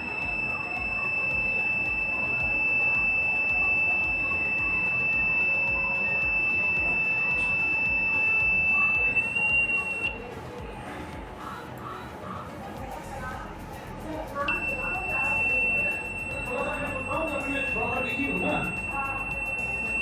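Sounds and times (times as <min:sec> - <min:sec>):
high-pitched piezo buzzer tone: 0:00.0 - 0:10.3, 0:14.5 - 0:20.0.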